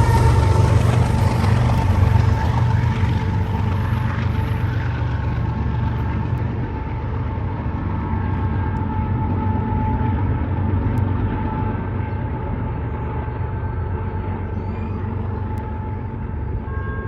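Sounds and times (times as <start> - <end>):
wheels squealing: 0.0 - 5.6
freight train rumbling: 0.0 - 17.0.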